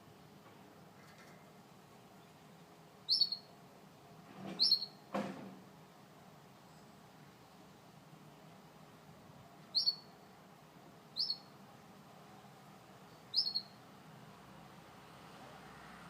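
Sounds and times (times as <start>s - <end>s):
faint room hum: 0.0s - 16.0s
canary chirps: 3.0s - 3.5s, 4.6s - 5.1s, 9.7s - 10.2s, 11.1s - 11.6s, 13.2s - 13.8s.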